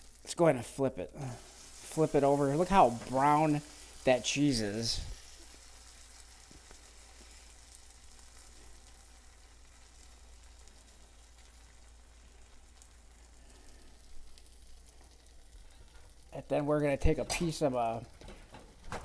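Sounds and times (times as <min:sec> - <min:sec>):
cheese sizzling in frying pan: 0:00.0 - 0:19.0.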